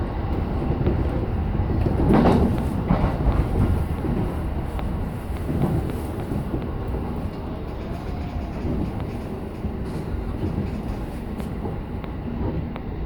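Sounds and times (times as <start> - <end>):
train wheels rumbling on rail: 0.0 - 13.0
faint clicks: 4.7 - 12.9.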